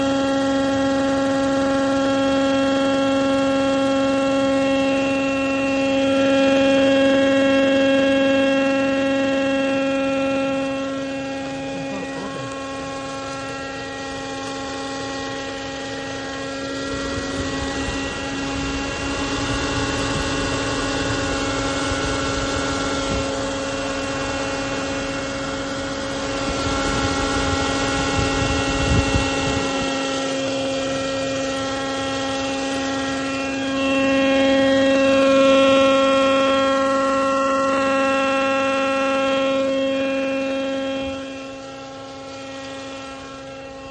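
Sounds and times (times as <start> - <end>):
car engine running: 0.0 - 34.8
pitched engine wheeze: 4.6 - 21.8.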